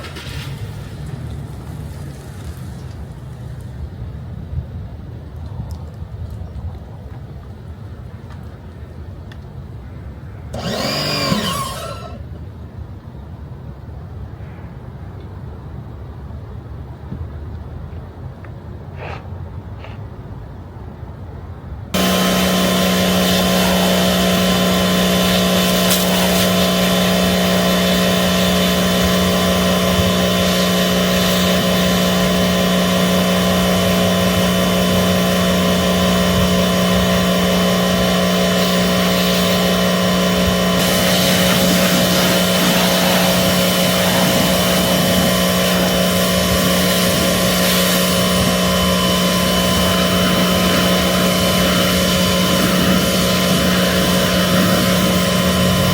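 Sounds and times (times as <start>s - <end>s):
air blower motor whine: 10.5s - 12.4s, 21.9s - 55.9s
rush of air: 40.4s - 55.9s.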